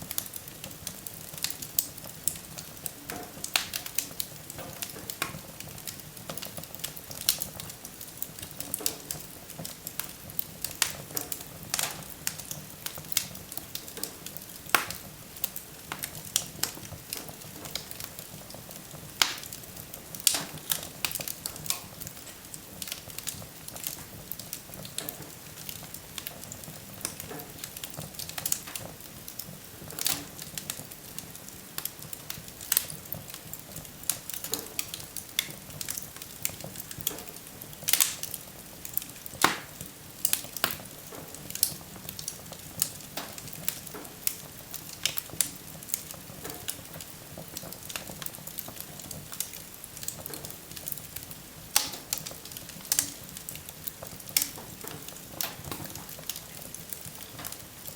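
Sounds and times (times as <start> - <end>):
fire popping: 0.0 - 57.9
wood fire crackling and hissing: 0.0 - 57.9.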